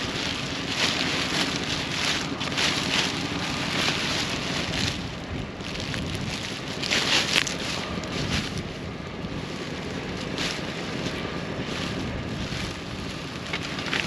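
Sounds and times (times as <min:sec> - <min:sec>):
plastic bags crinkling: 0:00.0 - 0:08.7.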